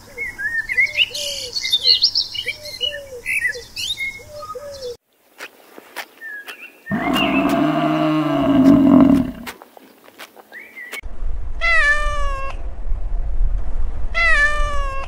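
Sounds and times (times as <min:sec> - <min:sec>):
water buffalo mooing: 0:06.9 - 0:09.5.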